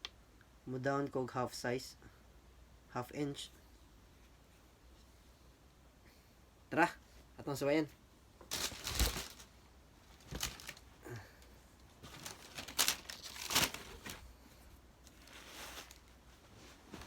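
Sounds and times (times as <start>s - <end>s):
packaging crinkling and rustling: 8.4s - 10.9s, 11.8s - 14.4s, 15.0s - 17.0s.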